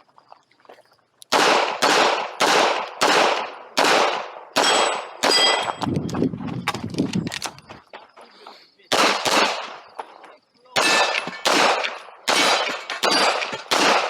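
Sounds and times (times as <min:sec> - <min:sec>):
handgun shots: 0:01.3 - 0:05.8, 0:08.9 - 0:09.8, 0:10.8 - 0:14.0.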